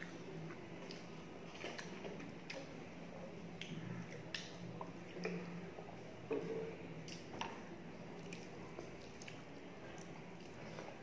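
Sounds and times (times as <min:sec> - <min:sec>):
chewing food: 0:00.0 - 0:02.8, 0:06.3 - 0:11.0
faint low hum: 0:00.0 - 0:11.0.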